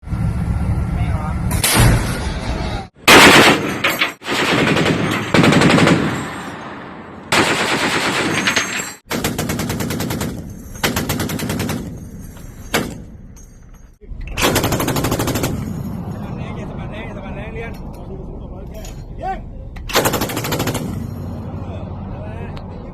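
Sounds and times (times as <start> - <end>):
automatic gunfire bursts: 3.1 - 3.6, 4.2 - 6.1, 7.3 - 8.4.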